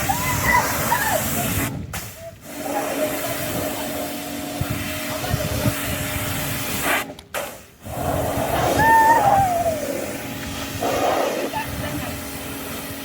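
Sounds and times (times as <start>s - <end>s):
water spray hissing: 0.0s - 13.0s
pressure washer motor hum: 2.4s - 7.1s, 9.8s - 13.0s.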